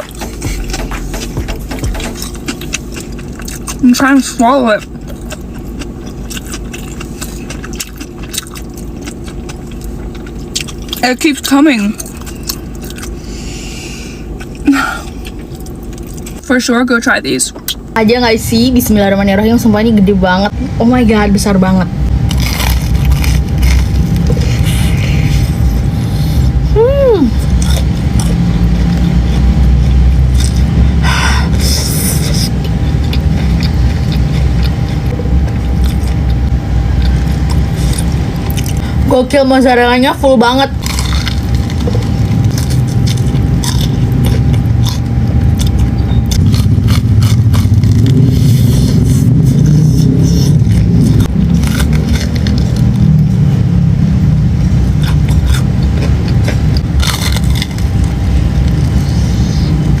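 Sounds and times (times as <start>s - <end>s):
chewing and crunching food: 0.0s - 16.4s, 22.2s - 39.1s, 40.6s - 53.4s, 54.8s - 60.0s
loud low rumble: 0.0s - 60.0s
chewing with small clicks: 4.8s - 11.0s, 15.2s - 16.4s, 32.6s - 36.4s, 55.0s - 57.8s
crunchy bite into fried food: 40.8s - 50.5s, 55.0s - 58.1s.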